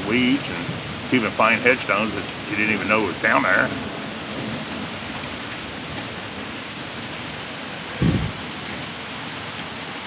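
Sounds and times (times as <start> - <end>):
steady rain: 0.0 - 10.0
short low thump: 8.0 - 8.4.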